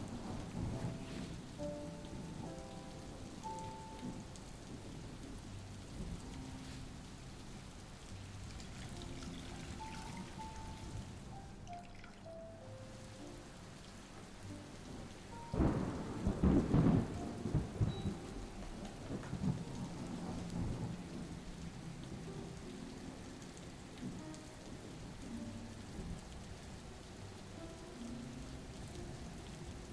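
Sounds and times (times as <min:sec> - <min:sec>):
thunder rumbling: 0:00.0 - 0:07.7, 0:14.5 - 0:26.8
steady rain falling: 0:00.0 - 0:29.9.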